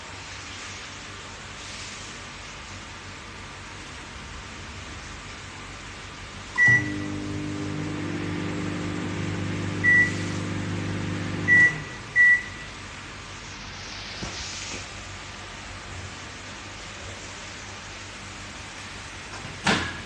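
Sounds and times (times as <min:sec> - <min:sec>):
microwave oven humming: 0:06.4 - 0:13.1
microwave oven beeps: 0:06.6 - 0:12.8.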